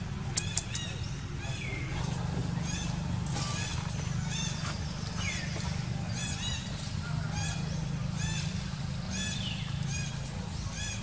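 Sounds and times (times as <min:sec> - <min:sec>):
bird calling in arched notes: 0:02.5 - 0:11.0.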